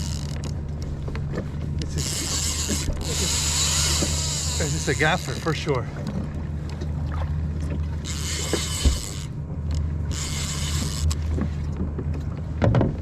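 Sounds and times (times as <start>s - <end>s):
fishing reel ratcheting: 0.0s - 0.6s, 1.8s - 5.6s, 8.0s - 11.2s
short thump: 8.8s - 9.1s.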